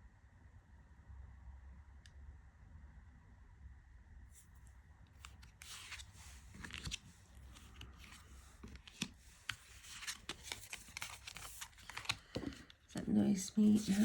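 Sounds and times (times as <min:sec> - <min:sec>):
cards shuffling and rustling: 0:05.2 - 0:14.0.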